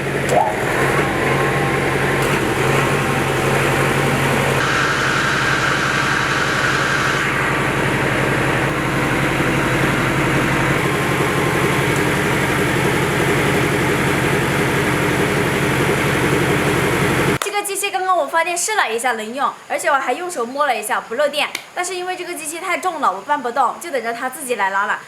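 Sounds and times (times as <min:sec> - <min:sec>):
generator engine running: 0:00.0 - 0:17.4
high-pitched whine: 0:00.0 - 0:17.4.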